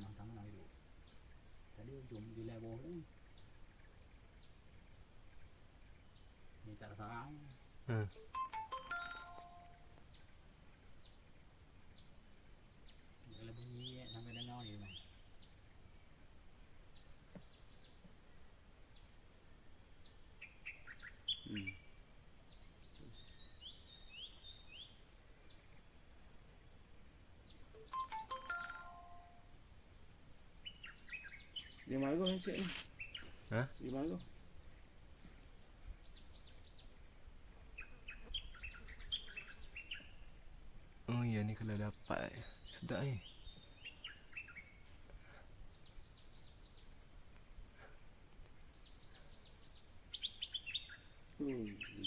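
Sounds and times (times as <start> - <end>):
songbird calling: 0.0 - 11.3, 11.9 - 16.2, 16.8 - 19.2, 20.0 - 25.9, 27.4 - 29.5, 30.6 - 47.0, 48.7 - 52.0
high-pitched insect drone: 6.6 - 10.0, 27.5 - 29.8, 30.6 - 34.3, 50.2 - 52.0
faint bird notes: 20.7 - 22.0, 50.2 - 52.0.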